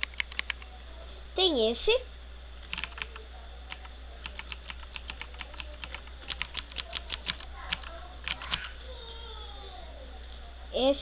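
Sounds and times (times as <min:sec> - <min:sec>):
typing on computer keyboard: 0:00.0 - 0:00.7, 0:02.7 - 0:08.7.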